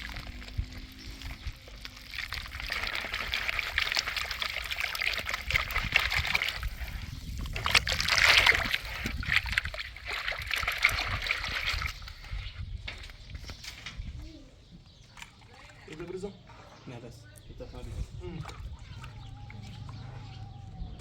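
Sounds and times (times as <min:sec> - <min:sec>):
water pouring and splashing: 0:00.0 - 0:13.9.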